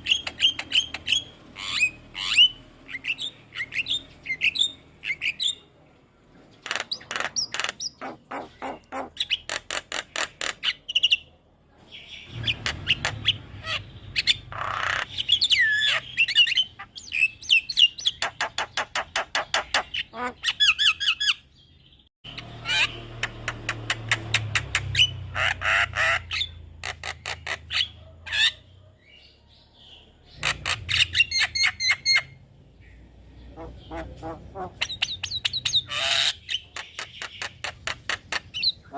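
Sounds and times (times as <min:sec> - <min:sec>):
myna chattering calls: 0:06.6 - 0:10.8, 0:12.3 - 0:21.4, 0:22.3 - 0:28.6, 0:33.4 - 0:38.9.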